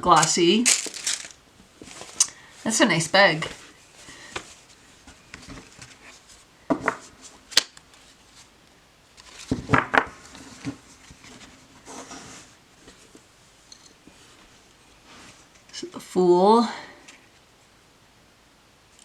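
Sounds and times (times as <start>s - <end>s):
cards and packaging clicking: 0.2s - 2.4s.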